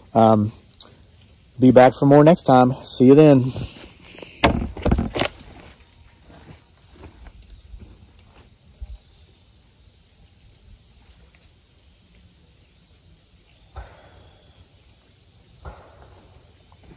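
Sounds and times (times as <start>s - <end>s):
birds chirping: 0.0s - 16.9s
soft thumps: 4.4s - 5.3s.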